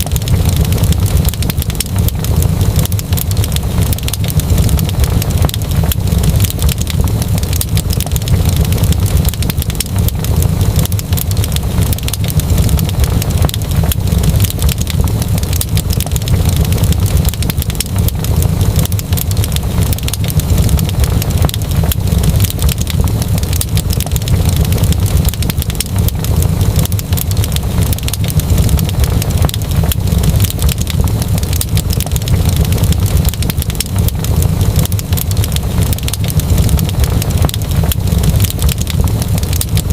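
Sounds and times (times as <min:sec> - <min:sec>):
low rumble: 0:00.0 - 0:39.9
wood fire crackling: 0:00.0 - 0:39.9.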